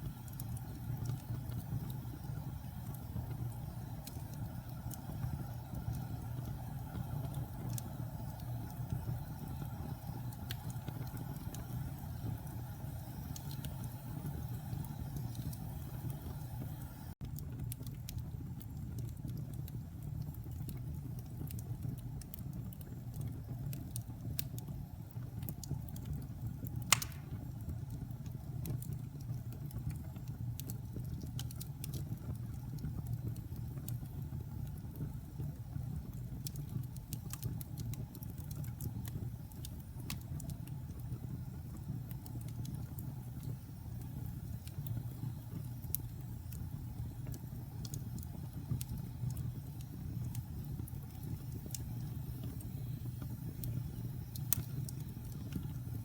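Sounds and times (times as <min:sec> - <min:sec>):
fire crackling: 0:00.0 - 0:56.0
wood fire rumbling: 0:00.0 - 0:56.0
sharp loud pop: 0:26.9 - 0:27.4.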